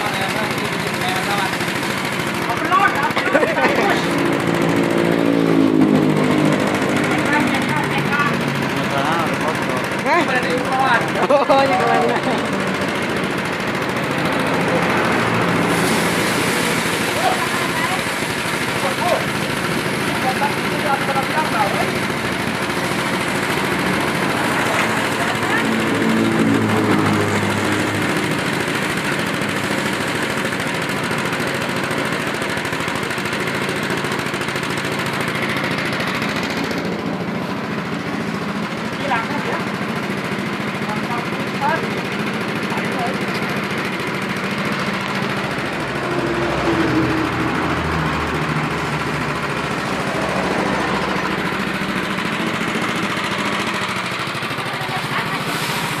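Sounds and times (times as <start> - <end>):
threshing machine clattering: 0.0 - 5.0, 6.9 - 56.0.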